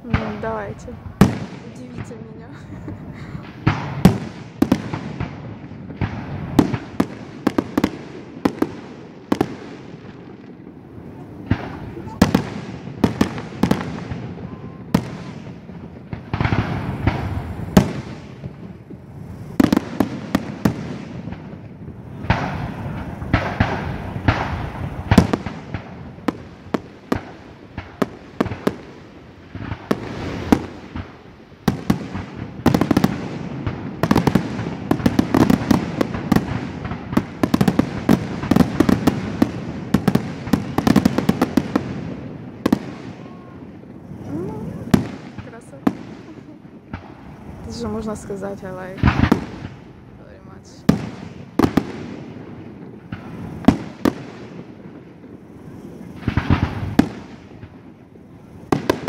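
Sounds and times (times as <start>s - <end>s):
fireworks bangs and crackles: 0.0s - 59.0s
rumbling fireworks booms: 0.0s - 59.0s.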